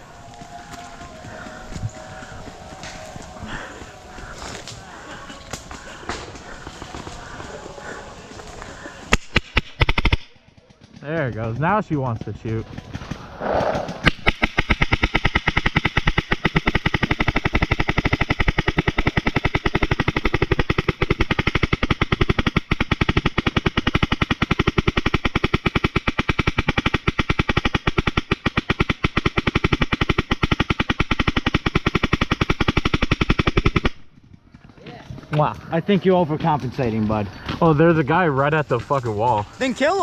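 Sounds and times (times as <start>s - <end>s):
paintball marker firing full auto: 9.1s - 11.0s, 12.7s - 34.2s.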